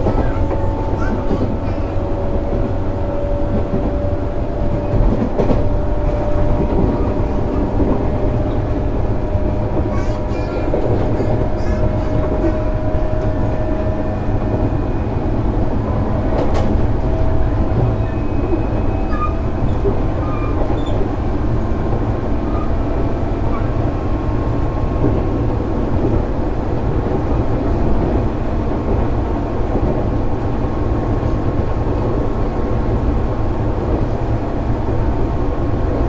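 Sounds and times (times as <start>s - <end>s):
wheels rumbling on rail: 0.0s - 36.0s
sharp clack from rails: 4.7s - 8.6s, 16.3s - 16.9s.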